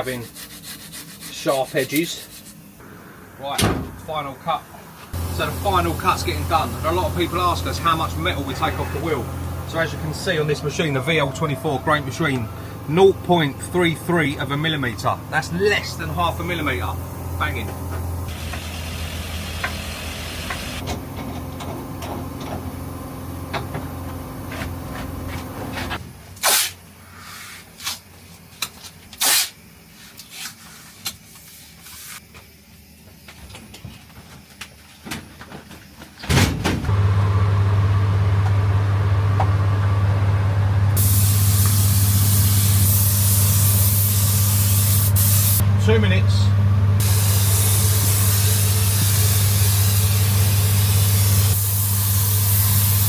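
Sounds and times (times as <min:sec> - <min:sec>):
loud hissing spray: 0:02.8 - 0:10.5, 0:41.0 - 0:45.6, 0:47.0 - 0:53.0
machinery humming: 0:02.8 - 0:25.9, 0:36.9 - 0:53.0.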